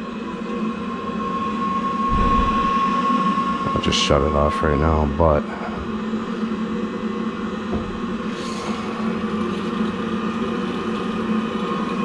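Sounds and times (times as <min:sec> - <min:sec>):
boiler mechanical hum: 0:00.0 - 0:12.0
water filling boiler: 0:07.6 - 0:12.0.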